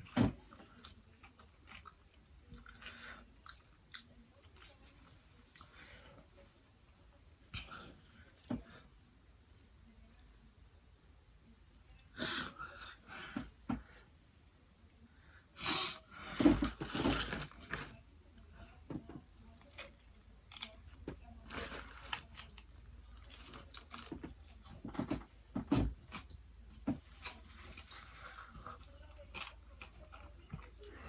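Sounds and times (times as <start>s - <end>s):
chewing and eating sounds: 0.0s - 6.4s, 19.2s - 31.0s
food crunching: 0.7s - 5.7s, 19.4s - 25.3s, 27.0s - 31.0s.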